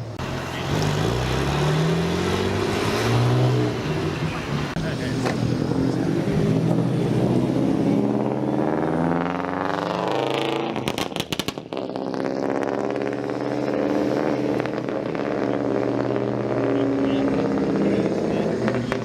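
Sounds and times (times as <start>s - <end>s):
car engine revving: 0.0s - 19.0s
sharp exhaust pops: 10.6s - 12.9s.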